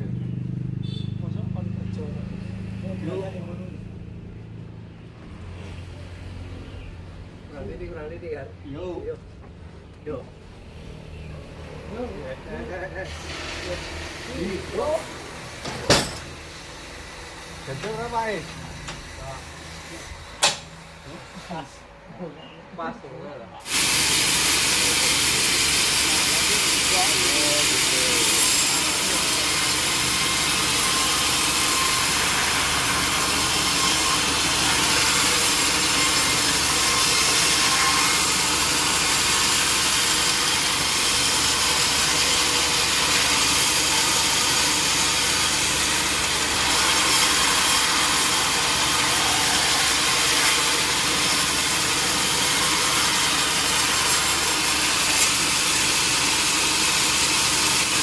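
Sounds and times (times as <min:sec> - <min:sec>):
sawmill saw cutting wood: 0:11.4 - 0:21.9, 0:23.6 - 0:58.0.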